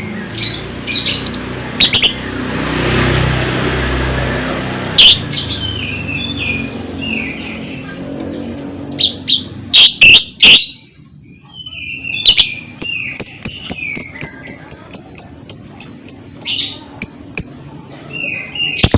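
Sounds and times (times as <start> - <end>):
bird chattering notes: 5.0 - 18.9.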